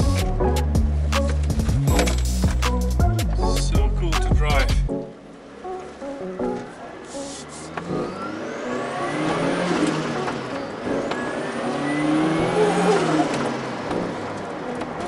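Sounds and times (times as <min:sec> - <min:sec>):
car engine accelerating hard: 0:06.5 - 0:15.0.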